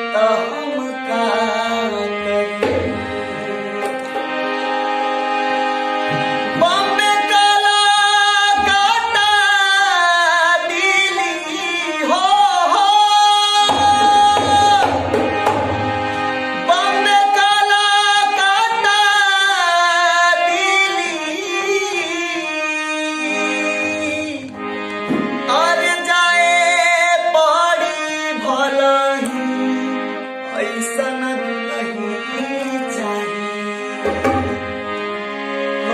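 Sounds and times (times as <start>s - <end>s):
instrumental accompaniment: 0.0s - 35.9s
tabla: 1.8s - 22.0s, 30.5s - 35.9s.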